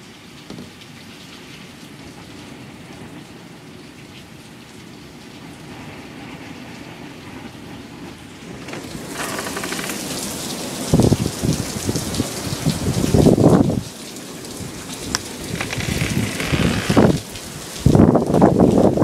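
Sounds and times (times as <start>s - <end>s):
heavy rain hissing: 5.4s - 19.0s
thunder rumbling: 14.6s - 18.5s.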